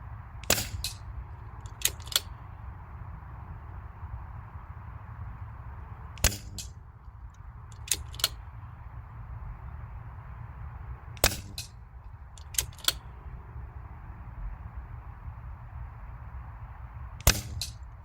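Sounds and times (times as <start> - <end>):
air rifle shots: 0.4 - 2.4, 6.2 - 6.8, 7.7 - 8.4, 11.2 - 11.8, 17.2 - 17.9
cocking lever metallic clicks: 0.4 - 2.4, 7.7 - 8.4, 12.4 - 13.1, 17.2 - 17.8.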